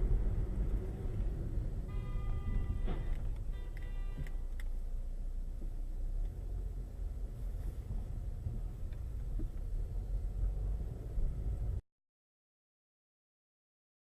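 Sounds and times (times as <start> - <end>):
car driving low rumble: 0.0 - 11.8.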